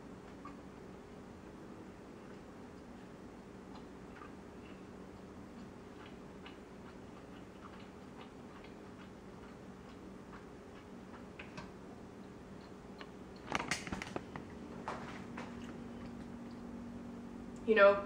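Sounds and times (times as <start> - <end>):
faint steady hum: 0.0 - 18.0
person chewing steak: 2.0 - 14.6.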